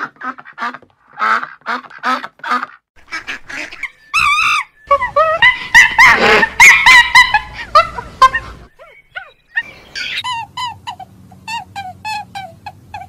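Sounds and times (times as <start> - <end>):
ducks quacking: 0.0 - 10.2.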